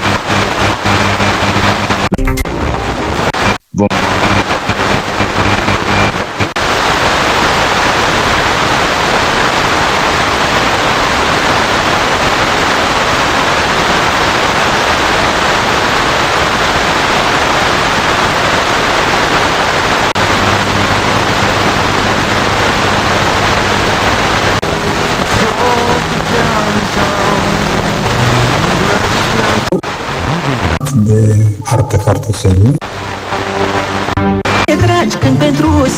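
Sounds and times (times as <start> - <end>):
radio static hiss: 0.0 - 35.9.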